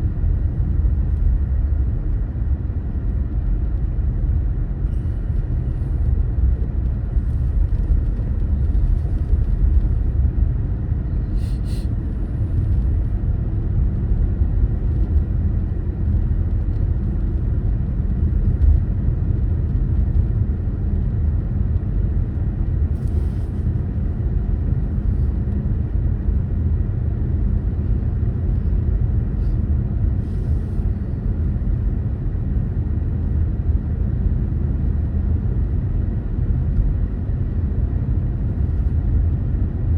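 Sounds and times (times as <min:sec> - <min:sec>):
car road and engine rumble: 0:00.0 - 0:39.9
faint brief hisses: 0:11.3 - 0:11.9.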